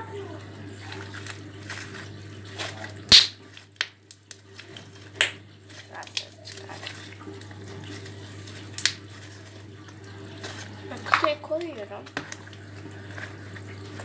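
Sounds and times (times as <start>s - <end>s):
slime squelching: 0.7s - 14.0s
slime popping: 3.1s - 4.3s.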